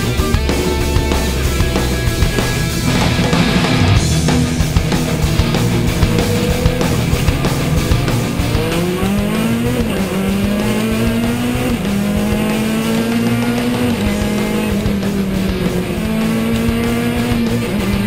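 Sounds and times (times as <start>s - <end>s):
rally car engine revving high: 0.0s - 18.0s.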